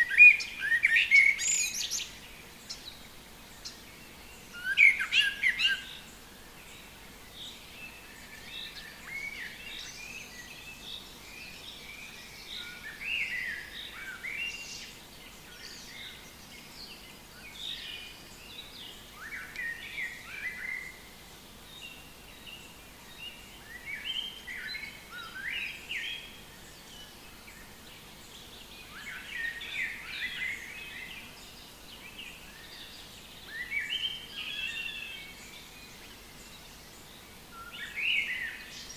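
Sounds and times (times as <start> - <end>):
faint steady background hiss: 0.0 - 38.9
songbirds chirping: 0.0 - 38.9.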